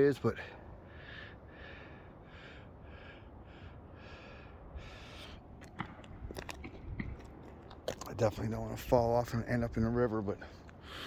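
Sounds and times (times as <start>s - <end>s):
man breathing hard and fast: 0.4s - 5.6s, 10.5s - 11.0s.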